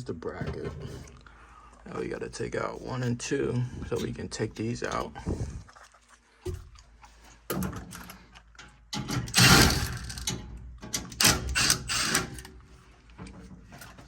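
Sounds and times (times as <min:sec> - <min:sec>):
power driver spinning screws: 0:11.2 - 0:12.4.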